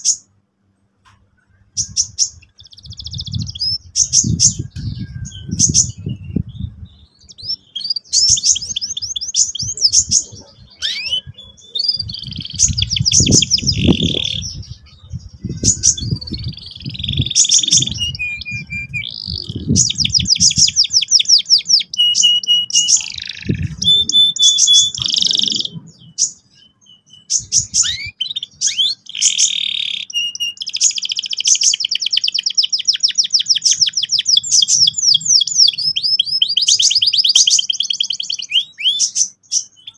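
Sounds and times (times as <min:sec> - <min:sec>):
canary singing trills: 0:01.4 - 0:39.9
low rumble: 0:09.6 - 0:20.8.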